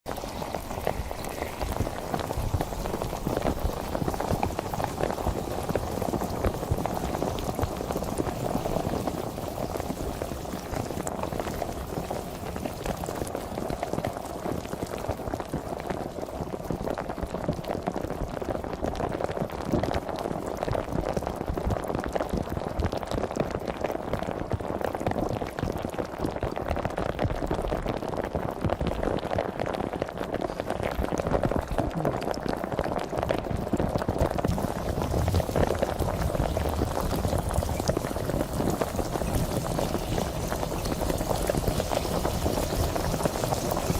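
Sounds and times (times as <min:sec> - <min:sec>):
sparkling water fizzing: 0:00.1 - 0:16.8, 0:33.5 - 0:43.9.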